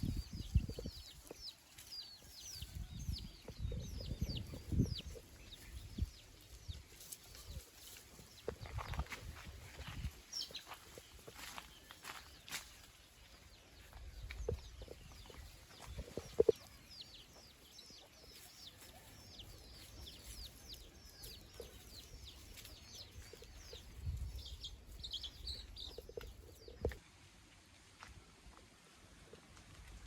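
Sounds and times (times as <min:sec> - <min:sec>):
chickens chirping: 0:00.0 - 0:27.0.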